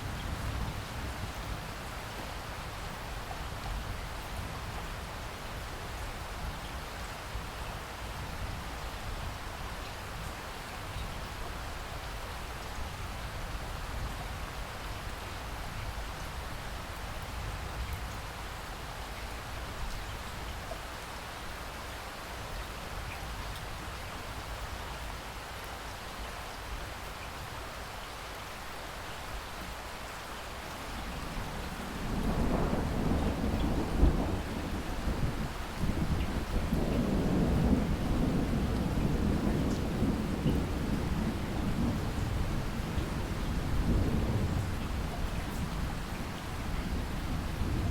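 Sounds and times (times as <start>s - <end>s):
low rumble of thunder: 0.0s - 9.4s, 30.8s - 47.9s
steady rain falling: 0.0s - 47.9s.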